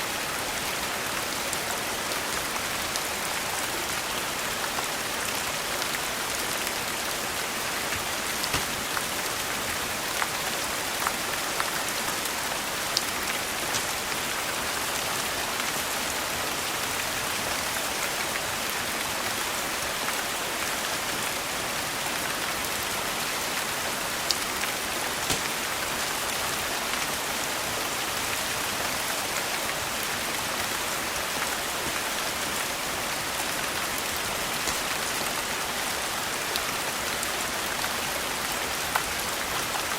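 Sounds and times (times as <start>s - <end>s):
steady rain falling: 0.0s - 39.9s
wood fire crackling: 7.7s - 9.9s, 13.0s - 14.3s, 24.4s - 26.3s.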